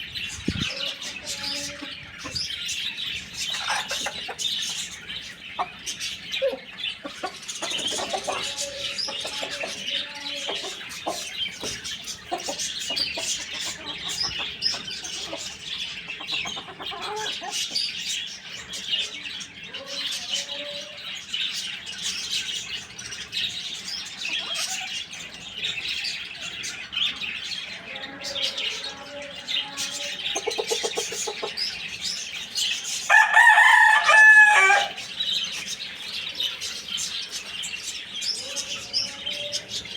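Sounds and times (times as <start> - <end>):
chickens clucking: 0.0 - 39.9
small birds chirping: 0.0 - 39.9
rooster crowing: 33.1 - 35.0.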